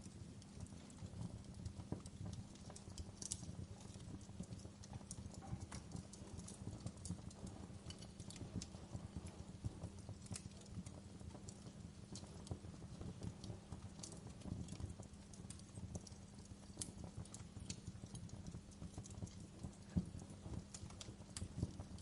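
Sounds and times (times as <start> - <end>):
log fire crackling: 0.0 - 22.0
low rumble of burning flames: 0.0 - 22.0
sharp pops and snaps: 1.5 - 9.2.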